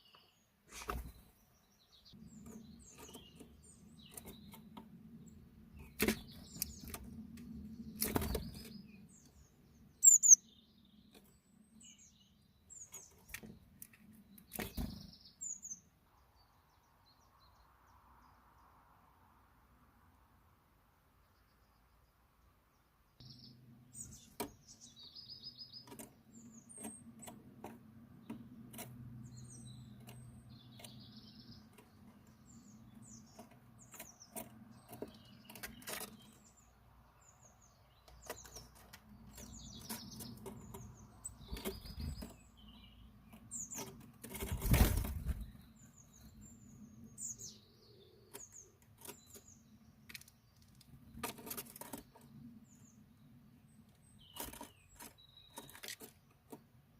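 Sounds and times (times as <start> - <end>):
small birds chirping: 0.0 - 19.2, 20.1 - 56.9
wing flutters: 43.7 - 45.6.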